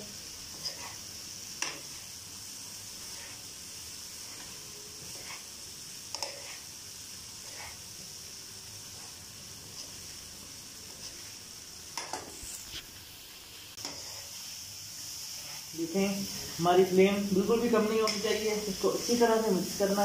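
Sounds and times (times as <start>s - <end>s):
food sizzling in a wok: 0.0s - 20.0s
utensils scraping and knocking pan: 6.1s - 6.6s, 13.8s - 14.4s.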